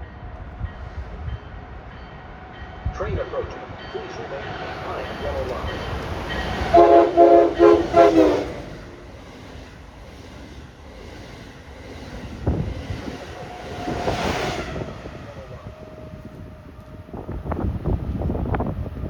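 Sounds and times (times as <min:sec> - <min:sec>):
train rumbling past: 0:00.0 - 0:19.0
train air horn blasts: 0:06.4 - 0:09.1.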